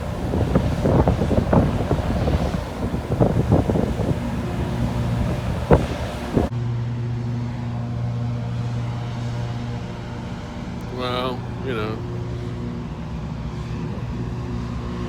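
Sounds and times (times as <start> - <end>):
wind buffeting microphone: 0.0 - 6.5
ferry engines droning: 0.0 - 15.0.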